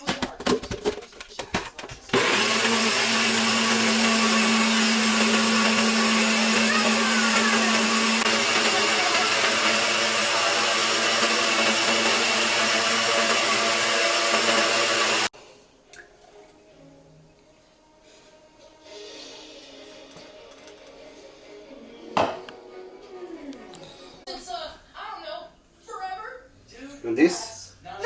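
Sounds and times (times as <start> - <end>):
electric appliance motor whirring: 2.1 - 15.3.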